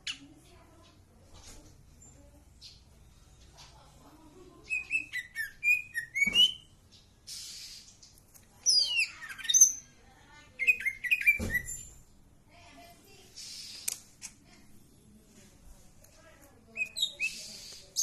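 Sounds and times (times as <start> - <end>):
songbird chirping and whistling: 4.6 - 7.9, 8.6 - 9.9, 10.5 - 11.9, 16.7 - 18.0.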